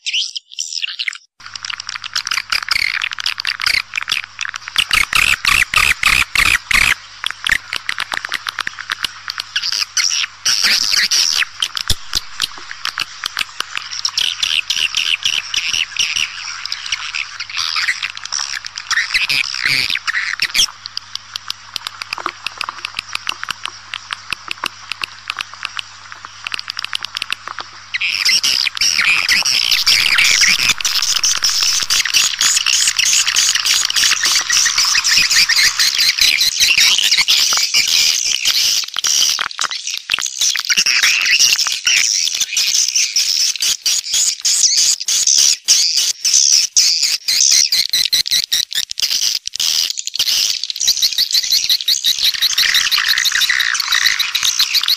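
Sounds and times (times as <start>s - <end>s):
swiftlets chirping and twittering: 0.0s - 39.3s, 49.6s - 54.9s
low hum: 11.4s - 14.6s, 25.4s - 36.4s.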